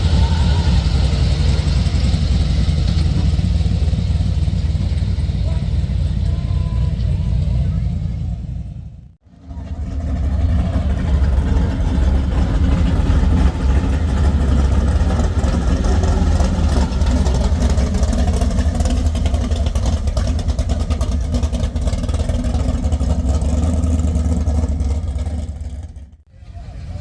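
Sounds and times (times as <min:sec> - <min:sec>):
vehicle engine rumbling: 0:00.0 - 0:27.0.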